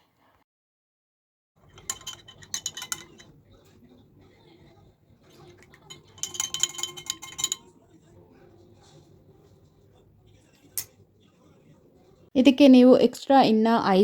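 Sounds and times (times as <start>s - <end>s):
spoon clinking in a glass: 1.6s - 9.0s.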